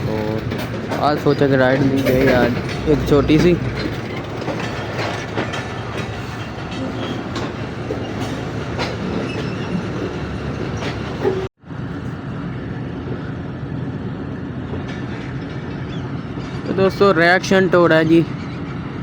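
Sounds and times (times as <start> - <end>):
wheels clicking over rail joints: 0.0 - 11.5
train coaches rumbling on track: 0.0 - 19.0.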